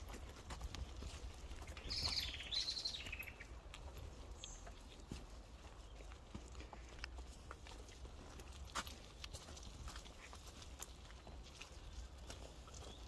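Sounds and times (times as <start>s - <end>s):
bicycle rolling on dirt trail: 0.0s - 13.0s
songbird trilling: 1.8s - 3.6s.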